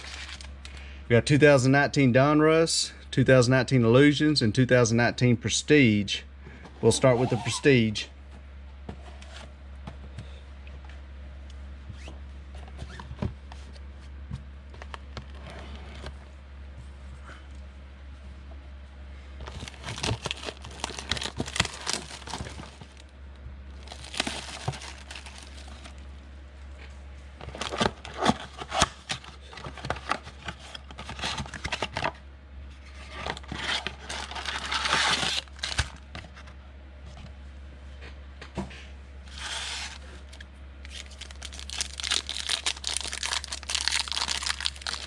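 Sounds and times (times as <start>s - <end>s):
foil wrapper tearing and crinkling: 0.0s - 0.5s, 19.5s - 23.0s, 23.8s - 26.0s, 33.5s - 36.0s, 40.8s - 45.0s
low steady hum: 0.0s - 45.0s.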